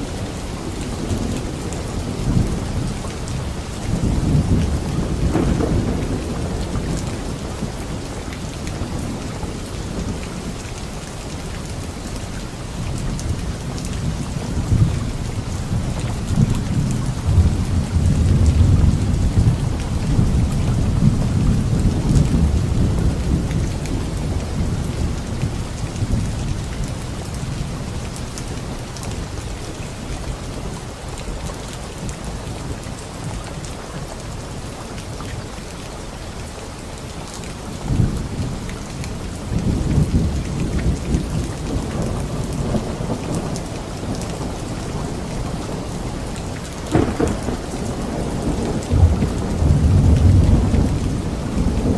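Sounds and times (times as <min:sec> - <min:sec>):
steady rain falling: 0:00.0 - 0:51.9
rolling thunder: 0:00.8 - 0:10.5, 0:13.3 - 0:27.8, 0:39.4 - 0:51.9.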